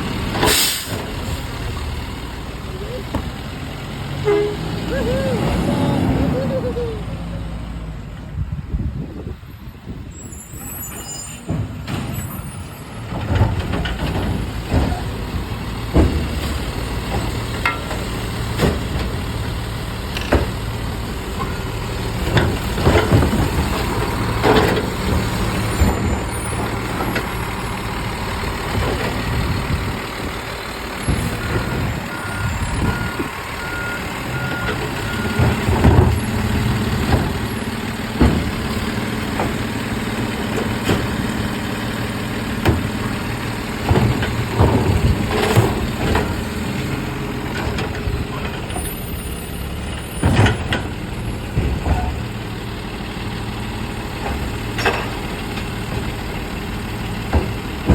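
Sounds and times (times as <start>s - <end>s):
diesel engine running: 0.0s - 10.8s, 11.5s - 57.9s
reversing alarm beeps: 32.1s - 35.5s.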